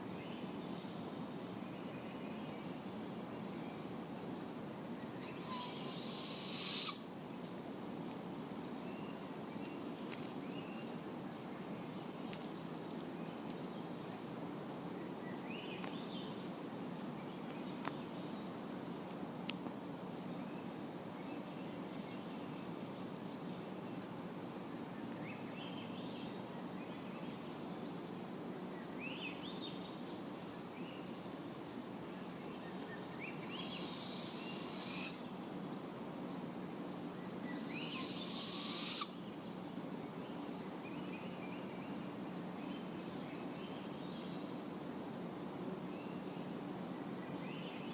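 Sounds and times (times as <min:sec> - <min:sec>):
small birds chirping: 0:05.0 - 0:07.3, 0:28.8 - 0:35.5, 0:36.2 - 0:42.0
owl hissing screeches: 0:05.2 - 0:07.2, 0:33.5 - 0:35.4, 0:37.4 - 0:39.4.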